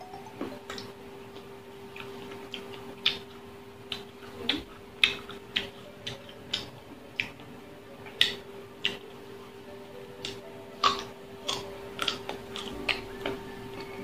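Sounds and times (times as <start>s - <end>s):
faint steady hum: 0.0s - 14.0s
crunchy chewing of raw mango: 1.8s - 9.2s, 10.2s - 14.0s.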